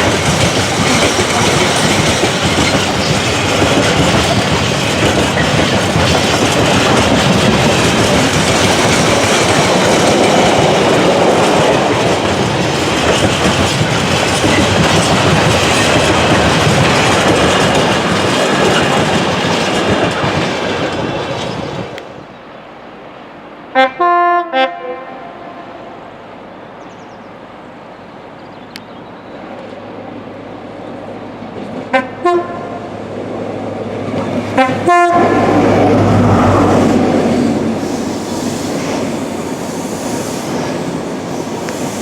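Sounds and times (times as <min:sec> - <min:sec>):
train wheels clacking on rails: 0:00.0 - 0:22.1, 0:30.9 - 0:42.0.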